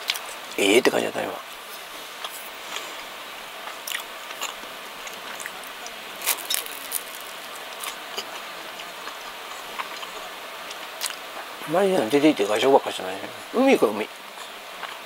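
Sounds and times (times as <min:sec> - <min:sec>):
person chewing: 0:03.6 - 0:11.2
toasted bread crunching: 0:03.9 - 0:08.3.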